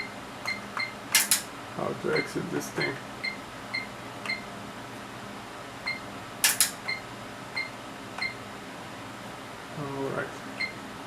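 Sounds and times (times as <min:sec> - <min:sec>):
sharp clicks: 0:00.5 - 0:01.5, 0:06.4 - 0:06.8.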